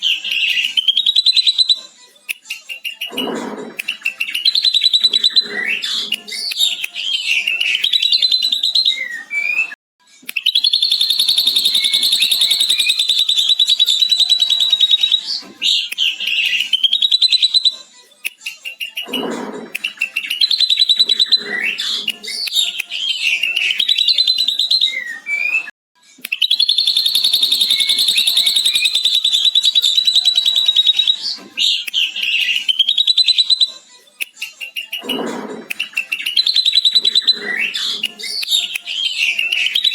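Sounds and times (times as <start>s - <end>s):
bird sharp whistles and chatter: 0.0s - 25.7s, 26.3s - 39.9s
bird chattering trill: 10.5s - 15.2s, 26.4s - 31.2s.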